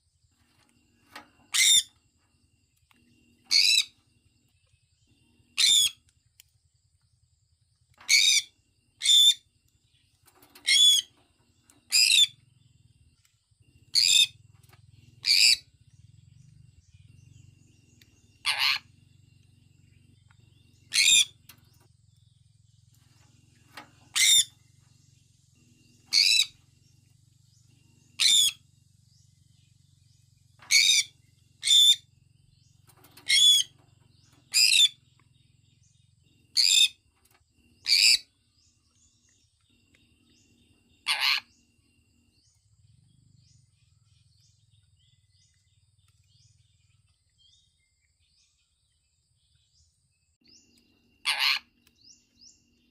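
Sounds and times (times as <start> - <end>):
parrot high-pitched calls: 1.5 - 1.9, 3.5 - 4.0, 5.6 - 6.0, 8.1 - 9.4, 10.6 - 11.1, 13.9 - 14.4, 15.2 - 15.7, 18.4 - 19.0, 20.9 - 21.4, 24.1 - 24.5, 26.1 - 26.6, 28.2 - 28.6, 30.7 - 32.1, 33.2 - 33.8, 34.5 - 35.0, 36.5 - 37.0, 37.8 - 38.3, 41.0 - 41.5, 51.2 - 51.8.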